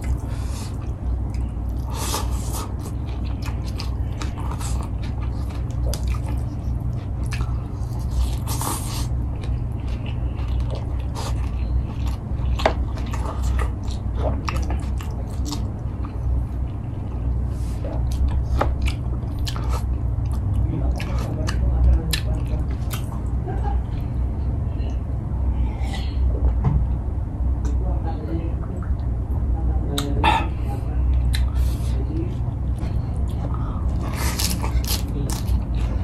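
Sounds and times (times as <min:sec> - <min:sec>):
person chewing food: 0:00.0 - 0:24.2, 0:31.1 - 0:31.9, 0:32.5 - 0:36.0
steady low hum: 0:00.0 - 0:36.0.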